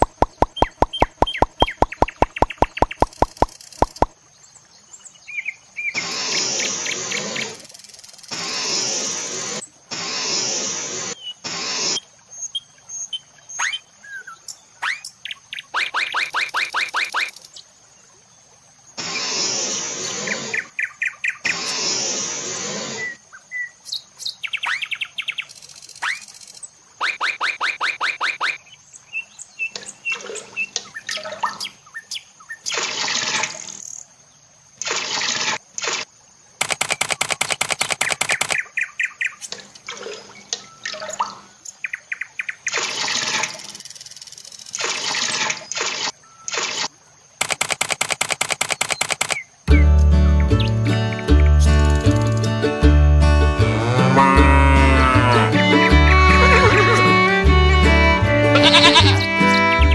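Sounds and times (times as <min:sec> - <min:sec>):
birds chirping and trilling: 0:00.0 - 0:07.9, 0:11.1 - 0:17.7, 0:20.0 - 0:21.8, 0:22.9 - 0:33.0, 0:37.0 - 0:46.6, 0:53.6 - 0:59.9.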